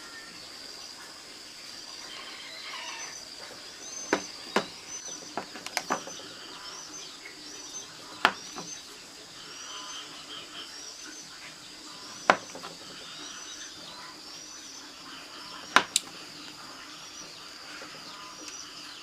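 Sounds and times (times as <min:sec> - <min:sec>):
small birds chirping: 0:00.0 - 0:19.0
sharp knocks: 0:04.1 - 0:06.2, 0:12.2 - 0:12.8.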